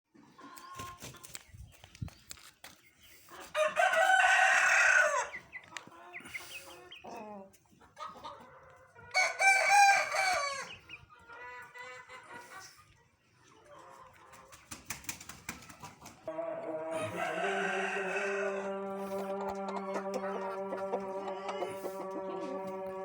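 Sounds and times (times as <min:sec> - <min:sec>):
rooster crowing: 0:03.6 - 0:05.3, 0:09.2 - 0:10.7, 0:16.3 - 0:23.0
soft clucking calls: 0:18.0 - 0:23.0.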